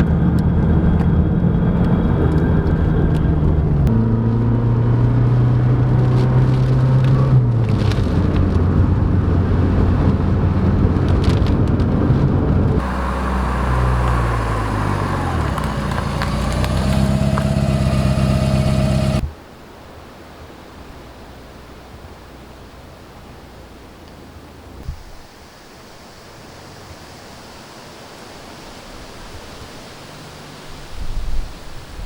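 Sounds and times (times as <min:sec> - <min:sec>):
car engine revving: 0:00.0 - 0:19.3.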